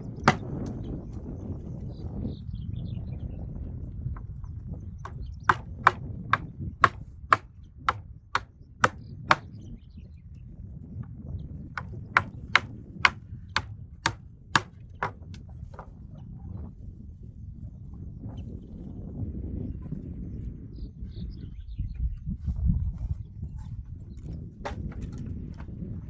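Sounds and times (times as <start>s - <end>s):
hammer blows ringing: 0.3s - 0.5s, 5.5s - 8.0s, 13.6s - 15.2s.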